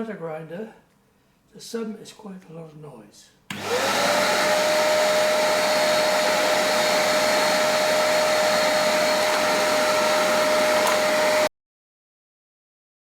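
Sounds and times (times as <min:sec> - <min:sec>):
grinder running with hum: 0:03.5 - 0:11.5
vacuum cleaner running: 0:03.5 - 0:11.5.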